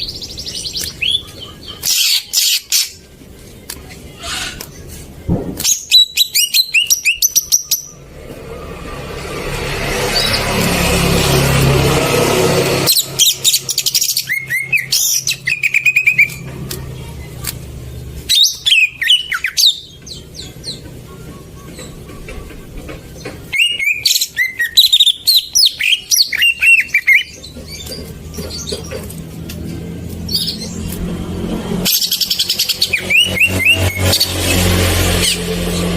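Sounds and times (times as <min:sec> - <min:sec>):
bird song of chirps and whistles: 0:00.0 - 0:03.0, 0:05.6 - 0:08.0, 0:12.9 - 0:16.4, 0:17.3 - 0:29.1, 0:31.9 - 0:34.6
loud rushing noise: 0:08.0 - 0:13.8.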